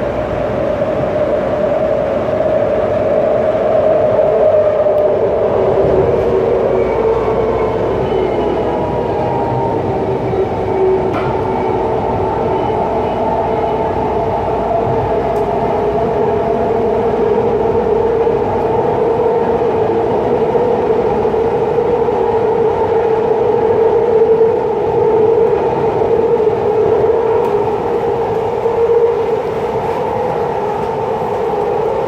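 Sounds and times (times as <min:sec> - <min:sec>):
train rumbling: 0:00.0 - 0:32.0.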